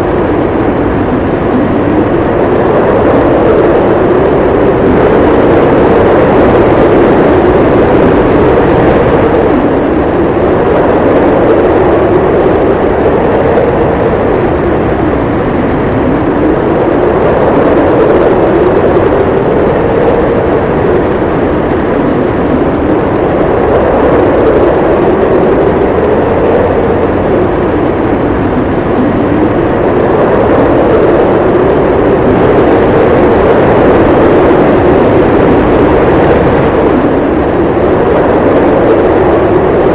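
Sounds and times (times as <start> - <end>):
blizzard wind howling: 0.0 - 39.9.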